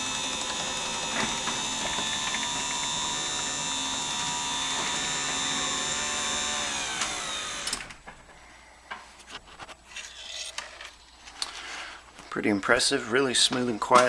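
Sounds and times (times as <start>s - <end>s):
garage door opener whining: 0.0s - 8.2s.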